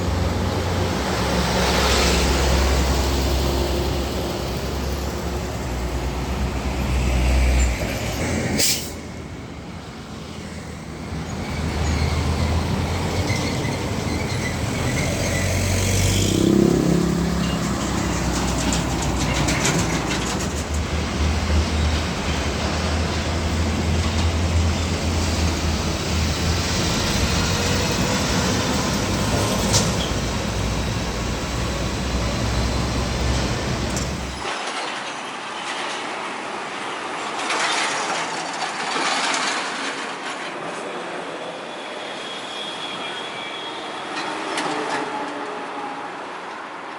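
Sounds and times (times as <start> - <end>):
truck diesel engine passing: 0.0 - 34.4
low traffic rumble: 0.0 - 34.5
tyres and air hissing: 8.2 - 9.2
vehicle passing by: 15.4 - 19.5.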